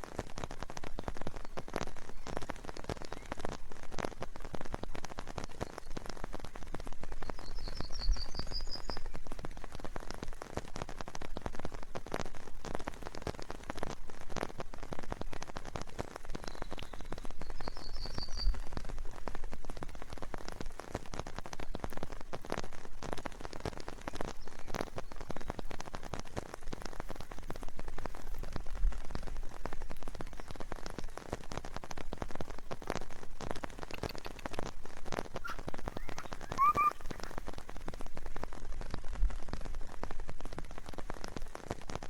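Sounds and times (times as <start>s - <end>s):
rain drops pattering: 0.0s - 42.0s
small bird high notes: 35.4s - 37.3s.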